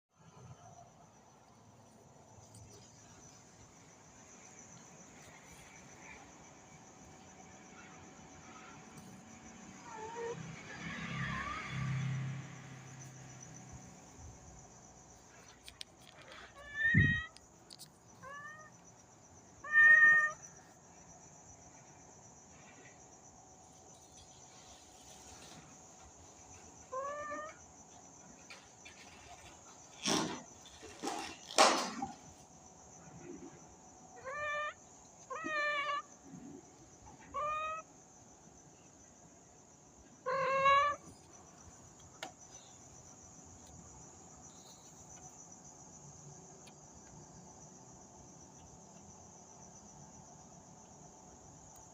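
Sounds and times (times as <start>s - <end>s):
insects chirring: 0.2s - 51.9s
cat meowing: 16.6s - 17.3s, 19.6s - 20.4s.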